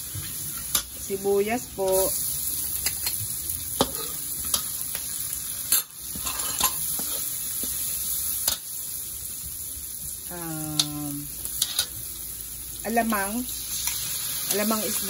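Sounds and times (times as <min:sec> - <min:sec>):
onion sizzling in hot oil: 0:00.0 - 0:15.0
metal ladle scraping a wok: 0:05.7 - 0:07.4, 0:11.6 - 0:11.9.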